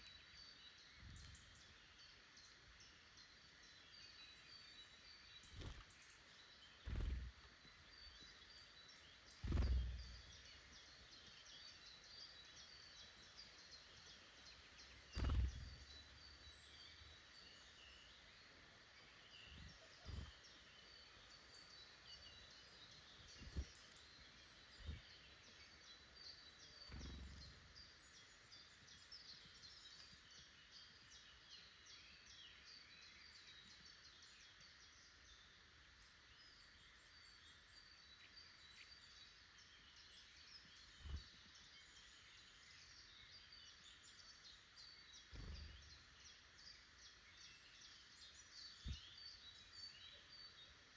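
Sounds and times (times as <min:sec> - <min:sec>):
small birds chirping: 0:00.0 - 0:50.9
dull low thumps: 0:15.2 - 0:15.8.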